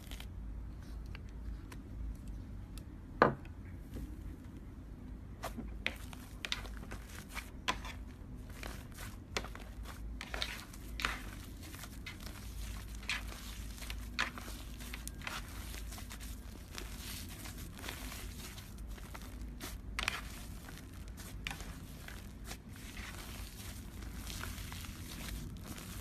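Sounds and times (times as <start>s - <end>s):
slime squished by hand: 5.9s - 26.0s.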